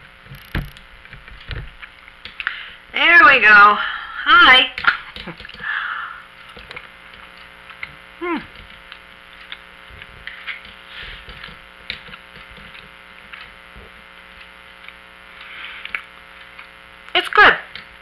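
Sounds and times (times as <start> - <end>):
person chewing: 4.9 - 17.1
person humming mm: 8.2 - 8.6.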